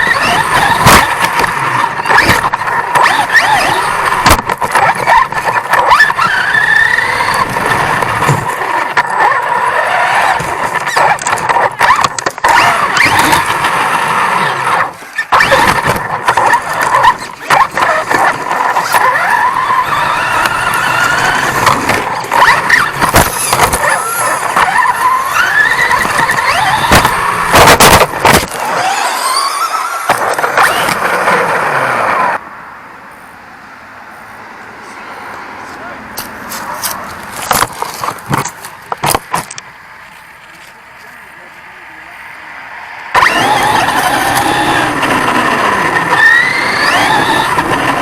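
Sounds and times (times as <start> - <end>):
chassis clattering over ground: 0.0 - 32.2, 36.5 - 39.8
rc truck motor whining: 0.0 - 32.4, 43.1 - 48.0.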